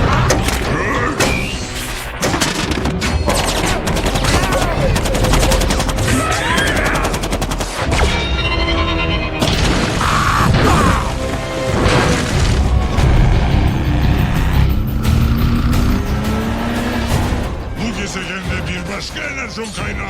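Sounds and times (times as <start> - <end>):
orchestral score: 0.0 - 20.0
rapid weapon fire: 2.2 - 8.0.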